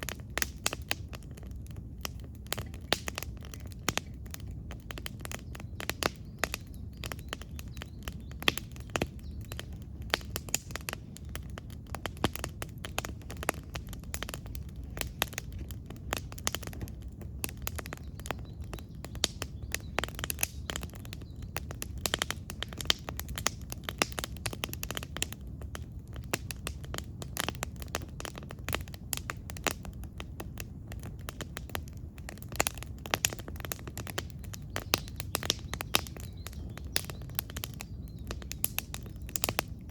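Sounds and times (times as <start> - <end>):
campfire crackling and popping: 0.0 - 39.9
steady low rumble: 0.8 - 27.2.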